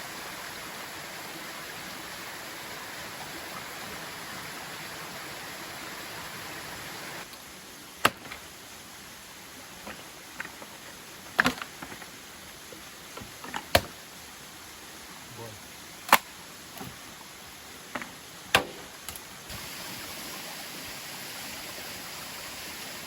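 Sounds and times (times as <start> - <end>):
waterfall rushing: 0.0 - 7.3, 19.5 - 23.0.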